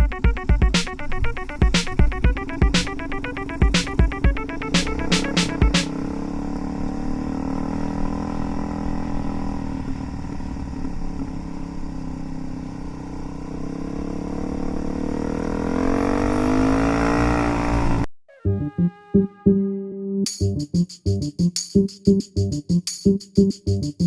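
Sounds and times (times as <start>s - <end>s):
motorcycle engine running: 0.0s - 18.1s.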